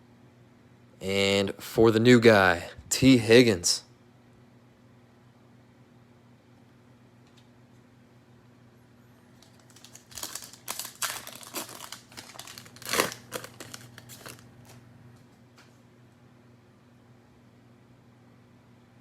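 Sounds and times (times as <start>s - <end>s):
cellophane wrapper crinkling: 9.4s - 14.8s.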